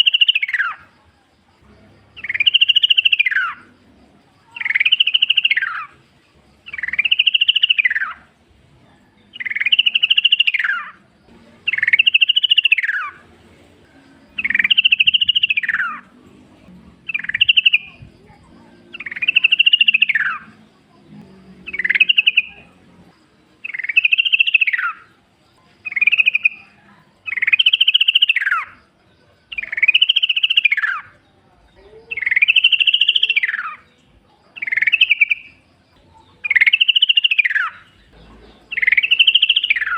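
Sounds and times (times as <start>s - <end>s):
bird whistled calls: 0.0s - 0.8s, 2.2s - 3.6s, 4.6s - 5.9s, 6.7s - 8.2s, 9.4s - 11.0s, 11.7s - 13.2s, 14.4s - 16.0s, 17.1s - 18.1s, 19.0s - 20.5s, 21.7s - 22.7s, 23.6s - 25.1s, 25.9s - 28.7s, 29.6s - 31.1s, 32.1s - 33.8s, 34.6s - 35.6s, 36.4s - 37.9s, 38.6s - 39.9s.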